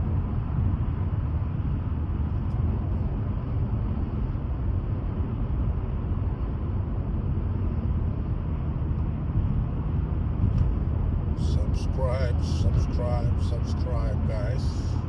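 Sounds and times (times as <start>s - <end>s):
vehicle rumbling in motion: 0.0s - 15.0s.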